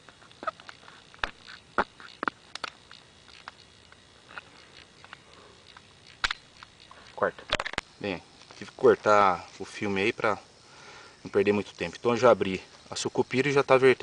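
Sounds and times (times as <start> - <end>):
knife cracking hard seed pod: 0.0 - 6.9.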